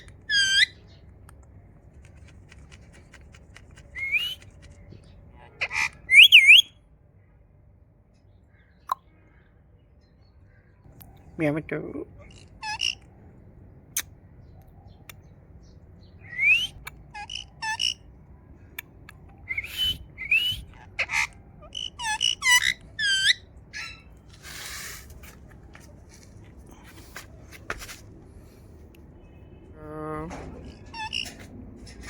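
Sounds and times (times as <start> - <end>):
parrot whistling and chirping: 3.9 - 4.4, 5.6 - 6.7, 16.2 - 18.0, 19.4 - 24.1.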